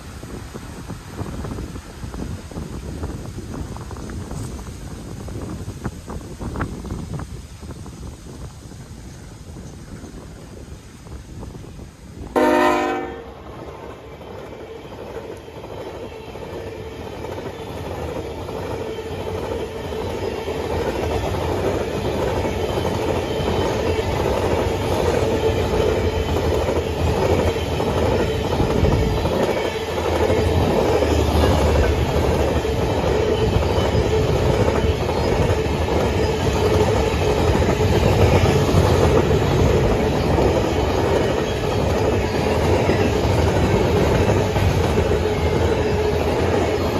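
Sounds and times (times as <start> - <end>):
train wheels clickety-clack: 0.0 - 12.4, 13.4 - 46.9
train horn blast: 12.3 - 13.4.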